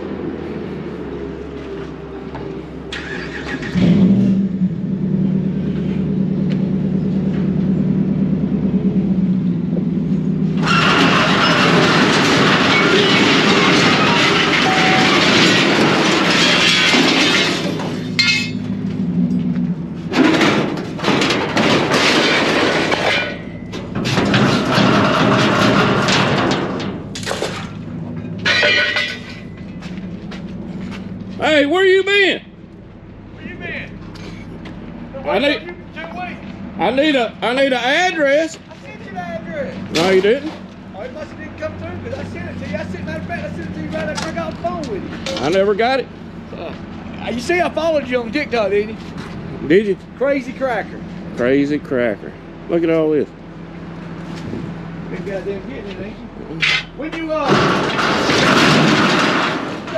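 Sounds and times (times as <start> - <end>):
truck engine running: 0.0 - 59.9
loud harsh noise: 10.6 - 17.2.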